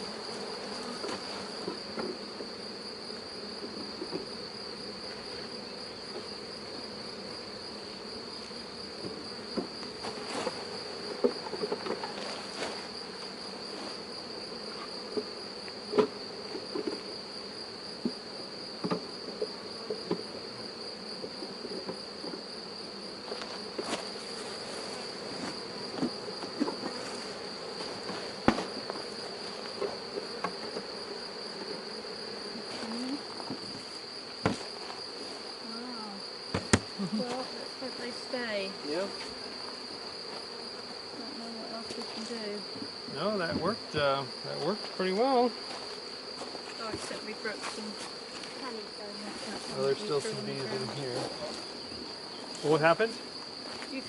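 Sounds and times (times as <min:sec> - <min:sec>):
honeybees buzzing: 0:00.0 - 0:54.0
wooden hive parts knocking: 0:34.4 - 0:34.8, 0:36.5 - 0:37.0.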